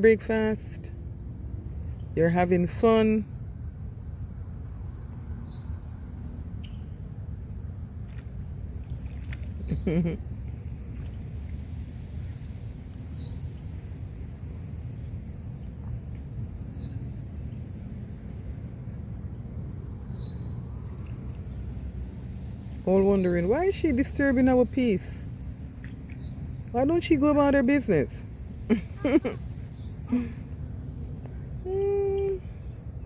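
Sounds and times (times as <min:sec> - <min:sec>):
high-pitched insect drone: 0:31.5 - 0:33.0.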